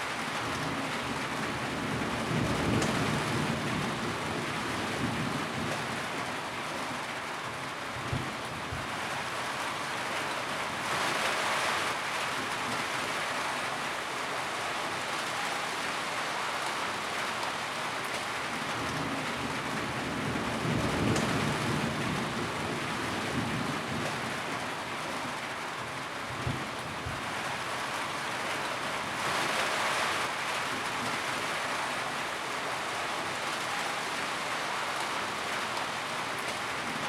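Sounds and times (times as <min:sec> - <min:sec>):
rain pattering on a tin roof: 0:00.0 - 0:37.0.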